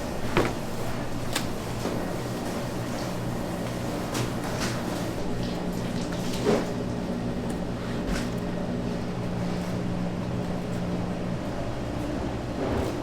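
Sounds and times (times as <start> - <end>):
electric hum of kitchen machinery: 0.0 - 13.0.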